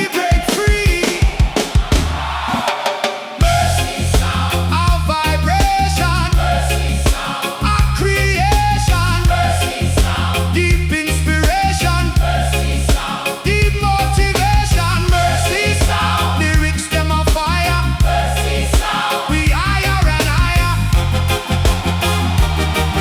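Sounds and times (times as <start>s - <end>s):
instrumental reggae music: 0.0s - 23.0s.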